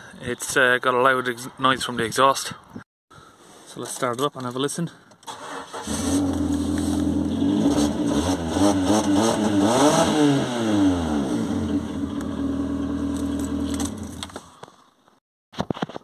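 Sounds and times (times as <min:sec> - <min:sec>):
diesel engine starting and idling: 0:05.3 - 0:09.2, 0:10.1 - 0:14.2
engine revving: 0:05.6 - 0:14.2.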